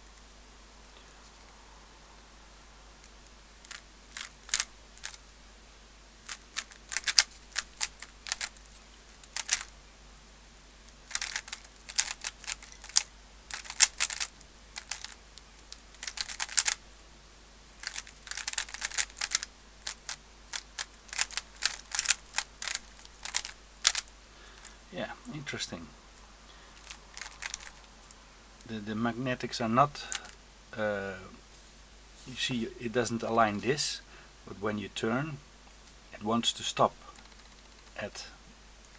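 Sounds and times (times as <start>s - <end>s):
plastic puzzle cube clicking: 3.6s - 5.2s, 6.2s - 9.7s, 10.9s - 16.8s, 17.8s - 24.7s, 26.8s - 28.2s, 30.1s - 30.4s, 37.2s - 38.0s.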